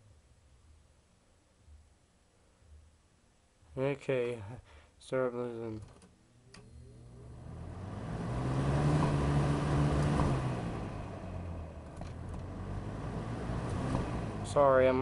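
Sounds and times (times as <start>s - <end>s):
box fan motor hum: 6.5s - 15.0s
fan air rushing: 7.0s - 15.0s.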